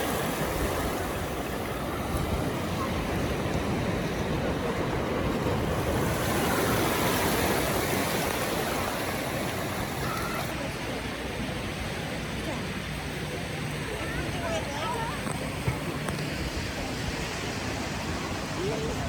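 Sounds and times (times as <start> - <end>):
ocean surf: 0.0 - 12.4.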